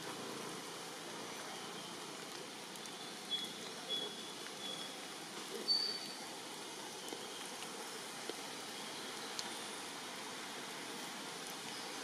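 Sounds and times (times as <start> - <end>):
steady rain falling: 0.0 - 12.0
faint ticks: 9.2 - 9.6.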